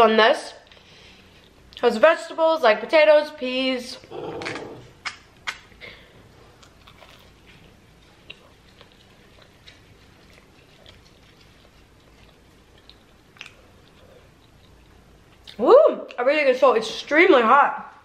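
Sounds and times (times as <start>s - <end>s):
person chewing: 6.3s - 15.6s
crunching fried snack: 6.6s - 7.5s.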